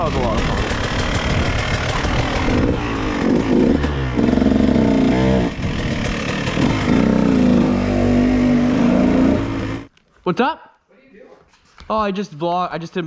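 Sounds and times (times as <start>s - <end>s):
dirt bike engine revving: 0.0s - 9.9s.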